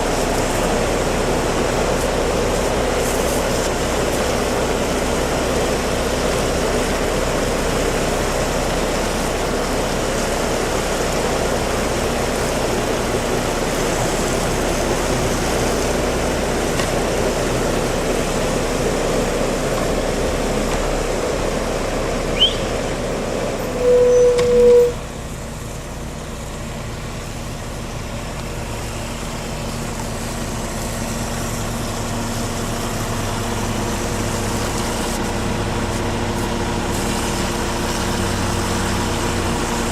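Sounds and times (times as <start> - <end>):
heavy truck engine running: 0.0 - 39.9
short loud beep: 23.7 - 25.0.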